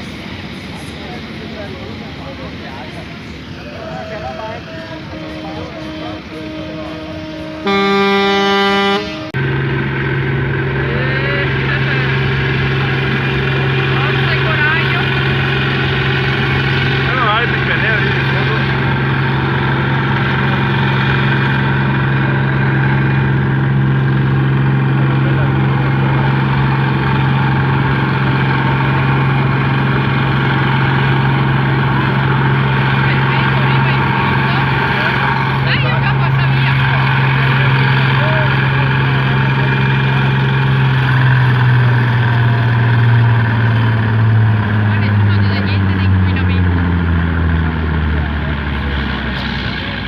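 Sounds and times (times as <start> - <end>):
tractor engine running: 0.0 - 50.0
horn blast: 3.5 - 42.7.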